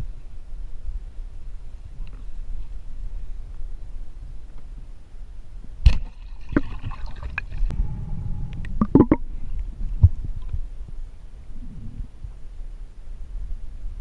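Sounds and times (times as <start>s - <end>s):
water sloshing and gurgling: 5.9s - 7.7s
low rumble: 6.9s - 14.0s.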